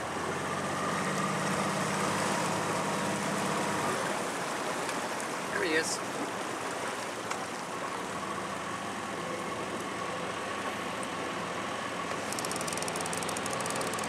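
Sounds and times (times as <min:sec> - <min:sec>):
boat motor whining: 0:00.0 - 0:14.0
fast high-pitched ticking: 0:12.3 - 0:14.0.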